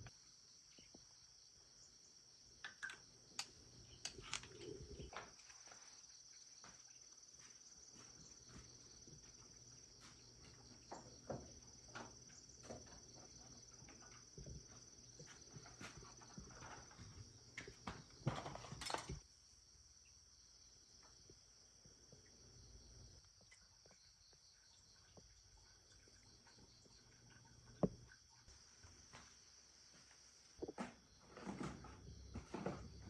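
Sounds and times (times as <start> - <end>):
insect chirring: 0.0 - 7.1.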